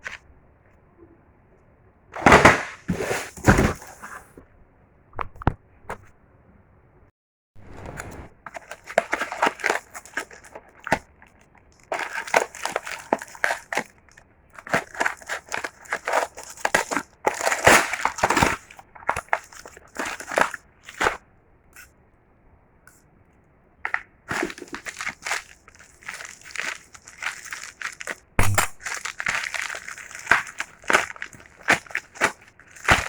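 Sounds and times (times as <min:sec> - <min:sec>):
packaging crumpling: 0:08.5 - 0:21.2, 0:23.9 - 0:33.0.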